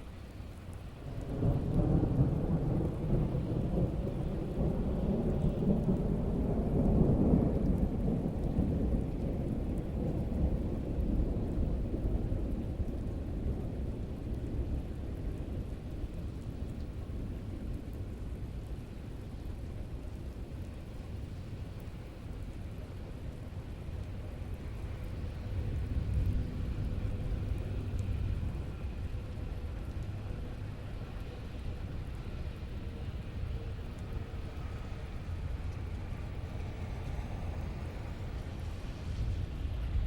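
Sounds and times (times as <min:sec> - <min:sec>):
rain falling: 0:00.0 - 0:40.0
thunder rumbling: 0:01.1 - 0:15.7.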